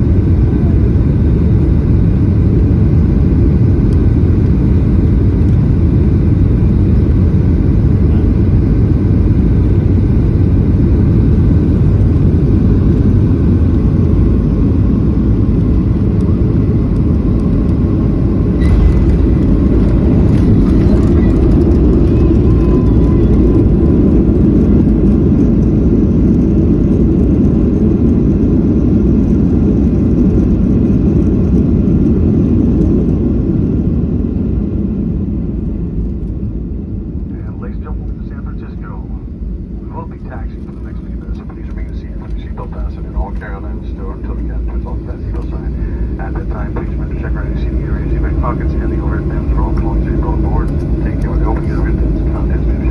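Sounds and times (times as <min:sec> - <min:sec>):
airliner cabin rumble: 0:00.0 - 0:52.9.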